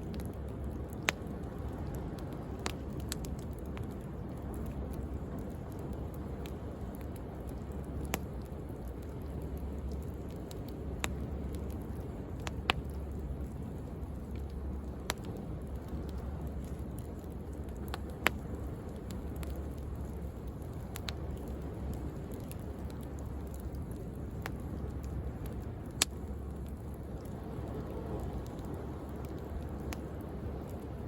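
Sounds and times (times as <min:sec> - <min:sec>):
bonfire wood crackling: 0:00.0 - 0:31.0
sharp fire pops: 0:14.3 - 0:30.8.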